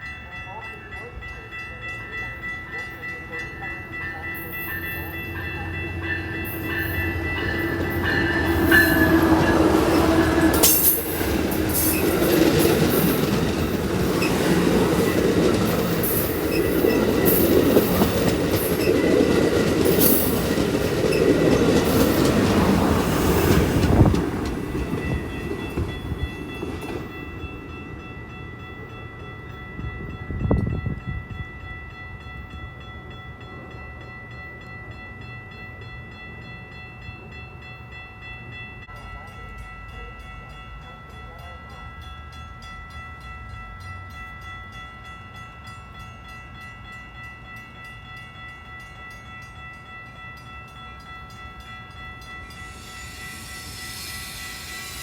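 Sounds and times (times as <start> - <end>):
train rumbling on rails: 0.0 - 55.0
steady high tones: 1.5 - 29.9, 51.9 - 55.0
train horn: 5.5 - 11.1.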